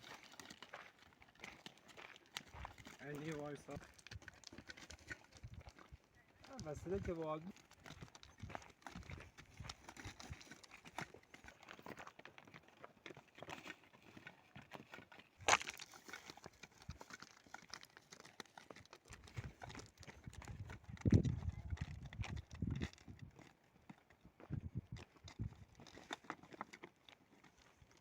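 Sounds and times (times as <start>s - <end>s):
footsteps on stony trail: 0.0s - 28.0s.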